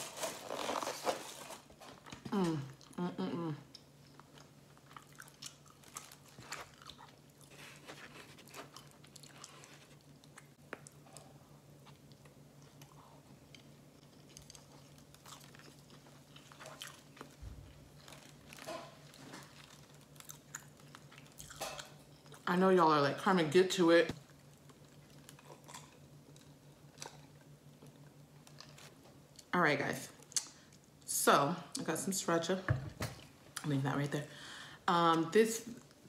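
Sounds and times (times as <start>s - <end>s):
faint low hum: 0.0s - 36.0s
person chewing: 3.7s - 22.4s, 24.3s - 29.5s.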